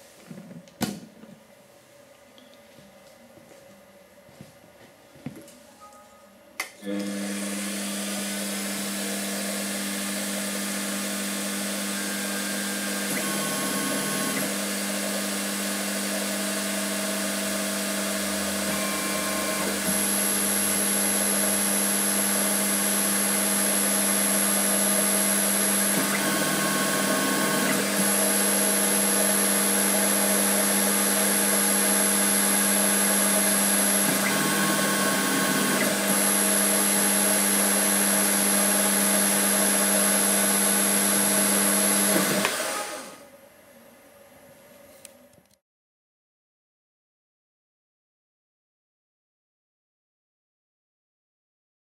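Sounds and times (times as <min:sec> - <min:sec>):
lathe motor hum: 0:06.8 - 0:43.2
high thin whine: 0:17.1 - 0:37.0
short whining tones: 0:32.2 - 0:37.0.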